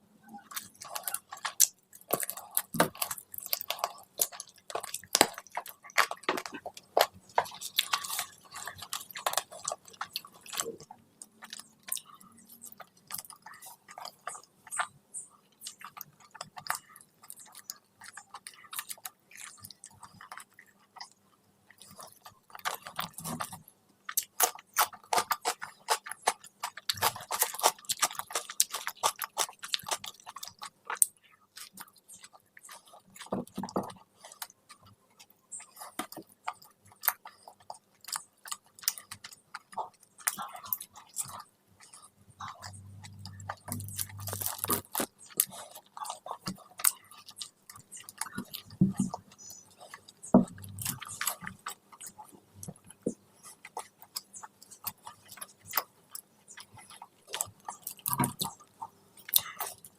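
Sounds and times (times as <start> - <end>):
person chewing food: 0.2 - 59.9.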